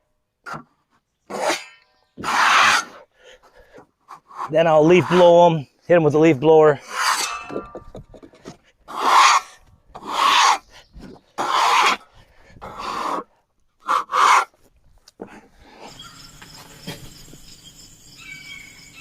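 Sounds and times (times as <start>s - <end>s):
rubbing strokes across wooden boards: 1.3s - 3.0s, 6.8s - 7.7s, 8.4s - 12.0s, 13.8s - 14.7s.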